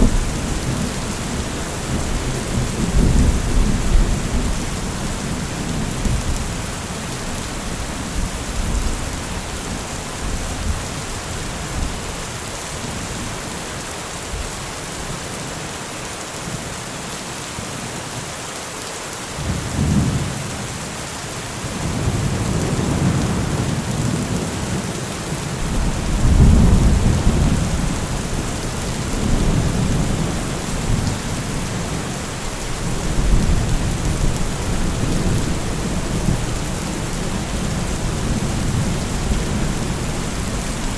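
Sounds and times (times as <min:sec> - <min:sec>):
steady rain: 0:00.0 - 0:40.9
rolling thunder: 0:25.6 - 0:32.2.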